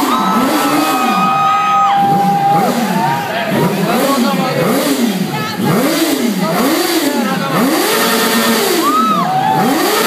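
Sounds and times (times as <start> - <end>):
higher-pitched engine rev: 0.0 - 10.0
motorcycle engine revving: 0.0 - 10.0.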